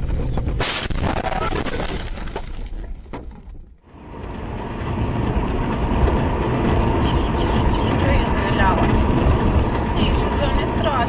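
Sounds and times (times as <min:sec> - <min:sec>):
car running on road: 0:00.0 - 0:11.0
car crash crunching and clattering: 0:00.6 - 0:03.8.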